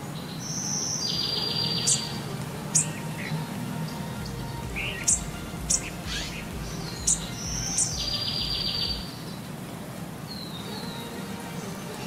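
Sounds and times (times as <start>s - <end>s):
birds chirping: 0.0s - 12.0s
buzzy bird trill: 0.3s - 9.5s.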